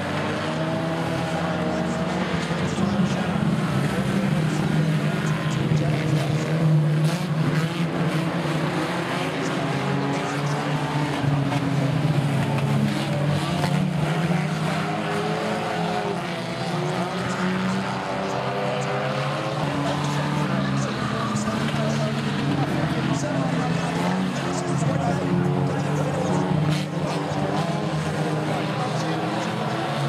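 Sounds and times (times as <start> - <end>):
racing car engines revving: 0.0 - 30.0.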